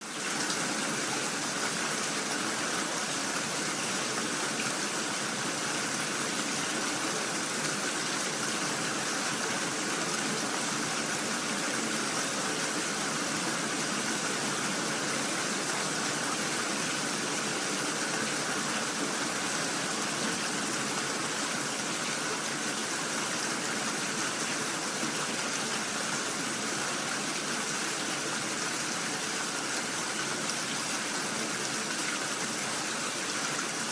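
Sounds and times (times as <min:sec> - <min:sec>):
steady rain hiss: 0:00.0 - 0:33.9.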